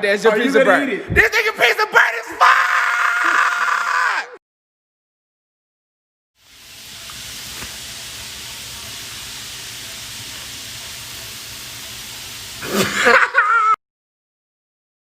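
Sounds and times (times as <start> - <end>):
person speaking: 0.0 - 2.4
steady hiss: 6.4 - 13.7.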